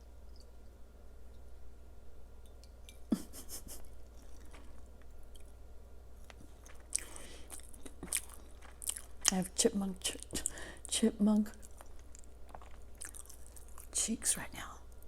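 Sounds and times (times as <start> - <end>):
person chewing food: 2.9 - 10.9, 11.5 - 14.0
food crunching: 2.9 - 14.0.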